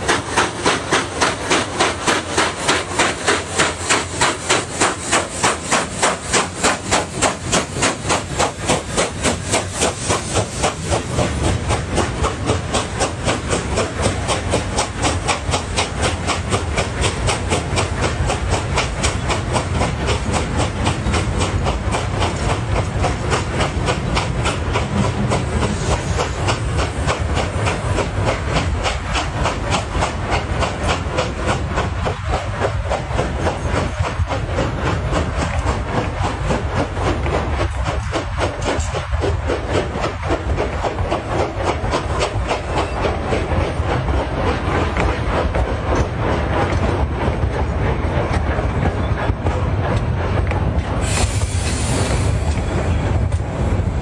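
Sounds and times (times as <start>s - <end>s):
hiss: 0.0s - 34.7s, 50.9s - 54.0s
rhythmic clatter: 0.0s - 48.6s.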